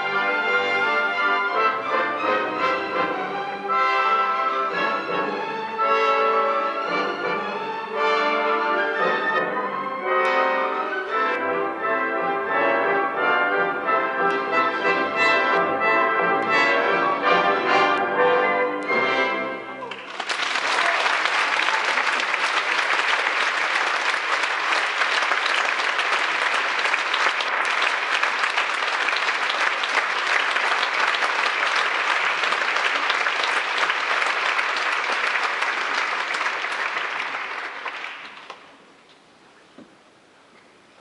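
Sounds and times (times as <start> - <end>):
orchestral music with brass: 0.0 - 20.0
audience applauding: 19.8 - 38.9.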